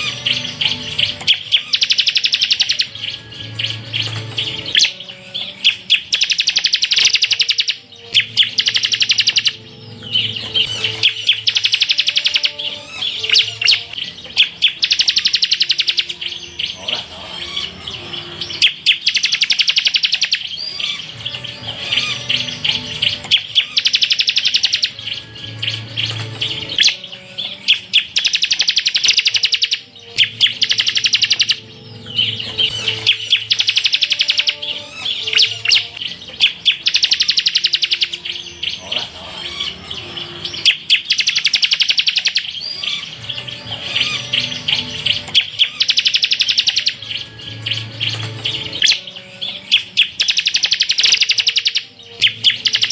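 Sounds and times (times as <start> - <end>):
bird singing rattling trills: 0.0 - 52.9.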